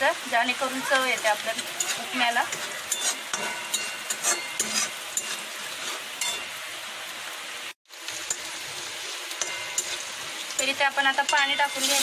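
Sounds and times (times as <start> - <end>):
food sizzling in hot oil: 0.0 - 12.0
spatula scraping metal pan: 1.2 - 6.5, 11.2 - 12.0.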